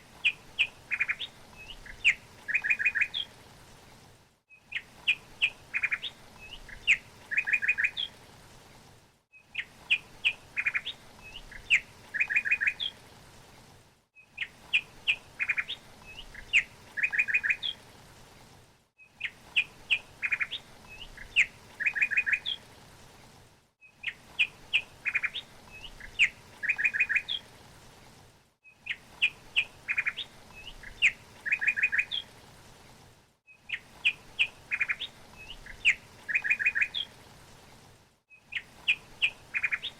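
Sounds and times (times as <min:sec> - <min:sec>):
faint steady hiss: 0:00.0 - 0:39.9
bird chirps and trills: 0:00.2 - 0:03.3, 0:14.2 - 0:17.8, 0:19.2 - 0:22.6, 0:23.9 - 0:27.4, 0:28.8 - 0:32.3, 0:33.7 - 0:37.1, 0:38.4 - 0:39.9.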